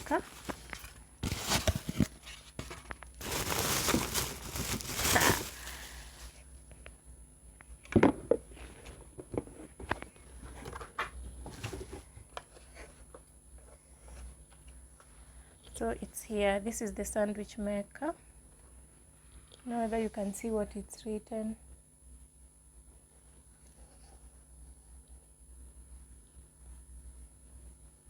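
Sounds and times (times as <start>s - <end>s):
packaging tearing and crinkling: 0.0s - 6.3s.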